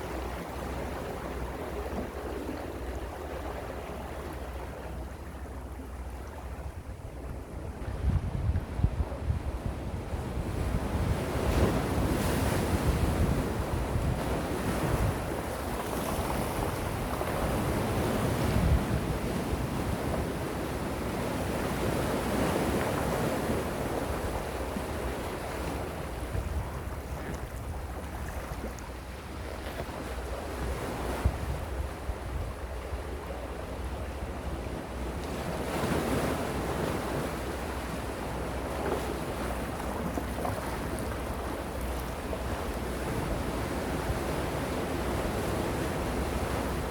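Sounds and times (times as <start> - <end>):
wind rumble on microphone: 5.0 - 46.9.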